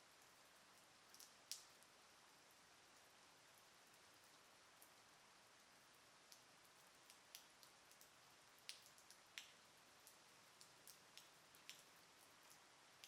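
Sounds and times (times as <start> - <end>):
light rain hiss: 0.0 - 13.0
rain drops ticking: 0.0 - 13.0.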